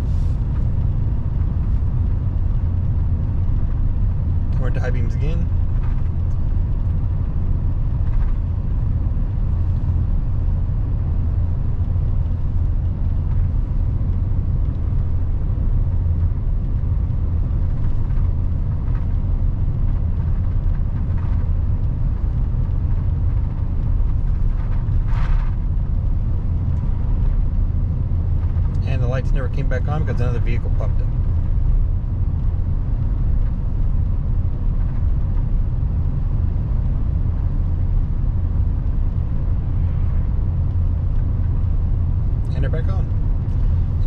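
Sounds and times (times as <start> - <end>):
truck engine and road drone: 0.0 - 44.0.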